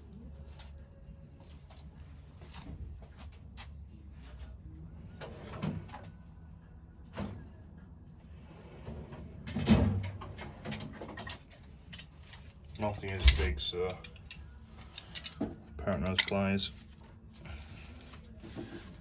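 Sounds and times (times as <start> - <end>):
metal tools clinking: 11.2 - 16.8.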